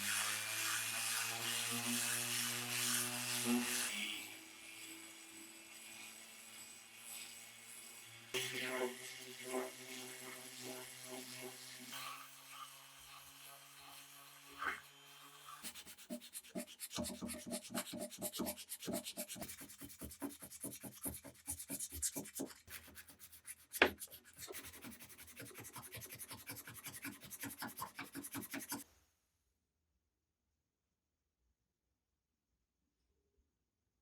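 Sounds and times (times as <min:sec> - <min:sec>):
hand sanding strokes: 0:15.5 - 0:28.8.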